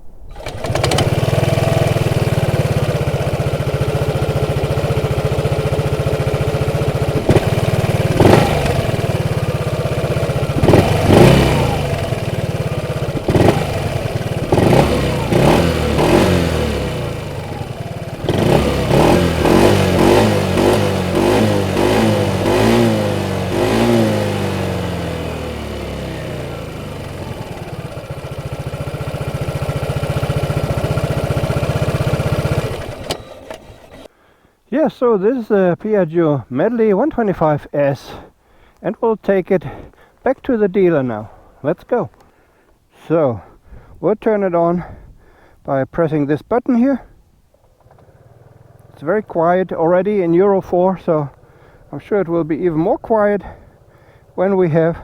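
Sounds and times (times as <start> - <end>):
scooter engine idling: 0.0 - 34.2, 47.6 - 55.0
scooter engine revving: 0.3 - 34.1, 47.6 - 55.0.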